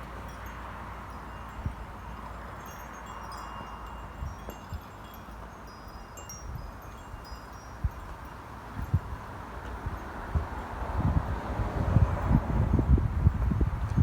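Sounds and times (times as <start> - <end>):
metal chimes tinkling: 0.2 - 9.0
wind on microphone: 5.9 - 14.0.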